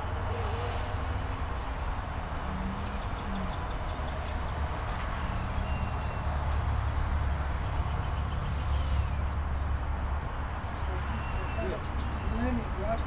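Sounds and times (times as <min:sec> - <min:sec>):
even hiss: 0:00.0 - 0:05.6
vehicle rumbling: 0:00.0 - 0:13.0.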